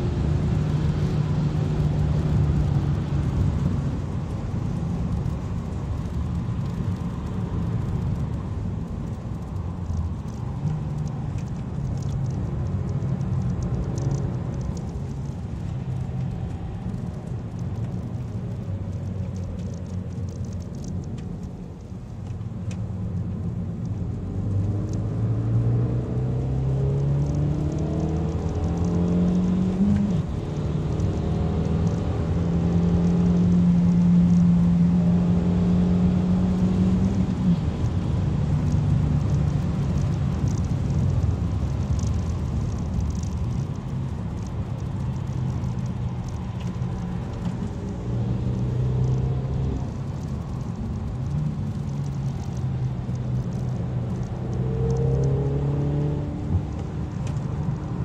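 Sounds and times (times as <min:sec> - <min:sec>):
road and tyre noise: 0:00.0 - 0:58.0
car engine accelerating: 0:09.4 - 0:58.0.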